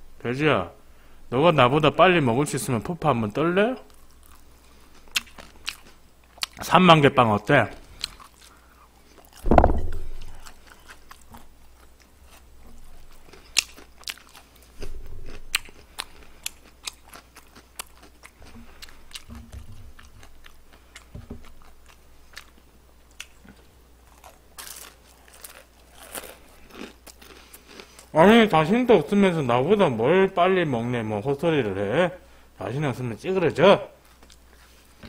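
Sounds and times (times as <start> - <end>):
man chewing crunchy food: 3.9 - 6.6, 7.7 - 28.1, 34.0 - 35.0
low thumps: 9.4 - 10.5, 14.8 - 15.7.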